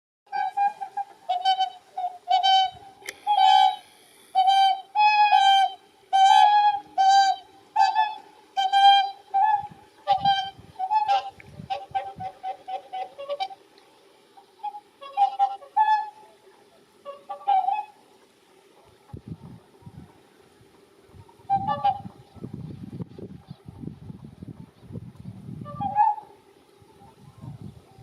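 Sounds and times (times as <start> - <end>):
fainter bird calls: 0.3 - 22.6
swans trumpeting honks: 0.3 - 22.6, 25.6 - 28.0.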